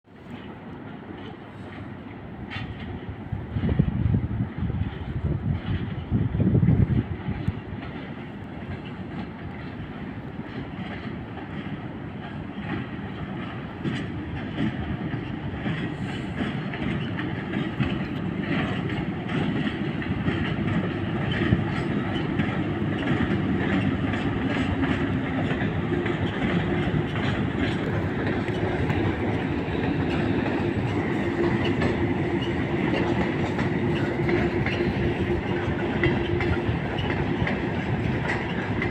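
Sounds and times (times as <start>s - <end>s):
freight train wheels clicking: 0.1s - 38.9s.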